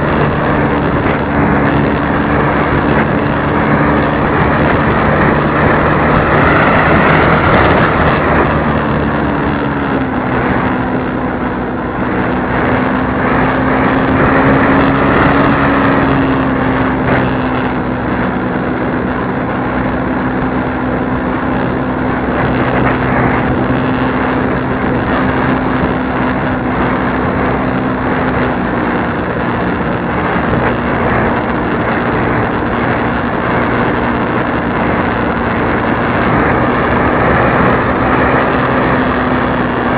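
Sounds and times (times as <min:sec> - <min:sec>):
model airplane engine drone: 0:00.0 - 0:39.9.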